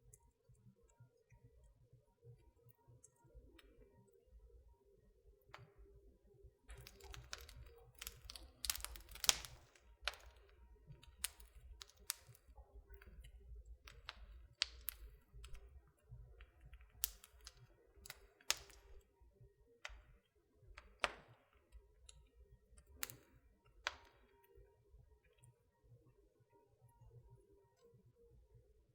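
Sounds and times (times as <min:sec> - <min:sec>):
fire popping and snapping: 0:06.6 - 0:19.2, 0:19.8 - 0:24.4
wood fire crackling: 0:06.6 - 0:19.2, 0:19.8 - 0:24.6.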